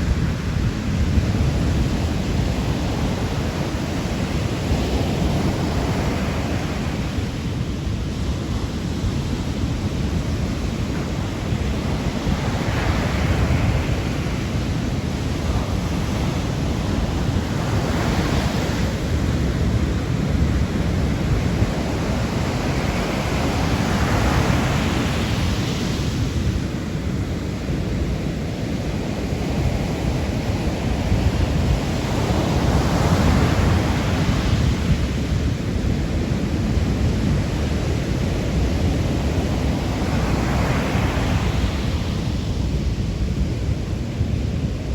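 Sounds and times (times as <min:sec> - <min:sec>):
sea waves washing onto shore: 0:00.0 - 0:44.9
wind rumble on microphone: 0:00.0 - 0:44.9.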